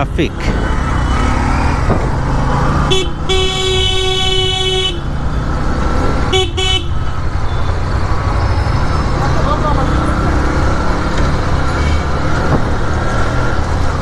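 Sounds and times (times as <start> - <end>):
rumble of traffic engines: 0.0 - 14.0
vehicle horn honking: 2.9 - 5.1, 6.3 - 7.7.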